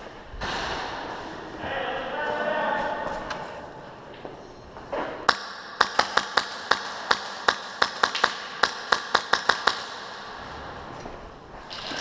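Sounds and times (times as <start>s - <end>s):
airsoft gun shots: 5.3s - 10.4s.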